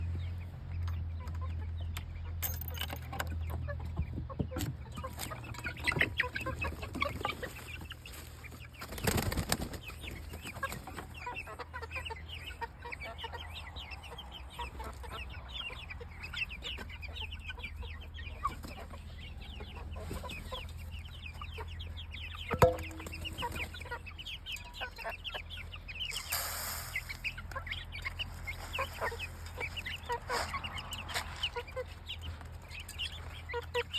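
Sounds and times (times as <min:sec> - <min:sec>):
chicks peeping: 0:00.0 - 0:33.9
sharp knock: 0:22.5 - 0:23.6.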